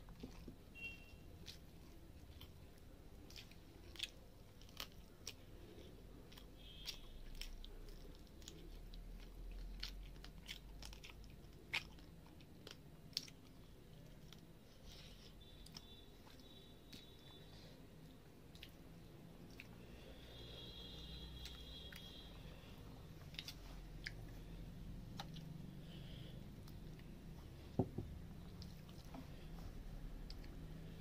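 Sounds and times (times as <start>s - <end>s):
person chewing: 0.0s - 31.0s
wet mouth clicks and smacks: 23.2s - 25.6s.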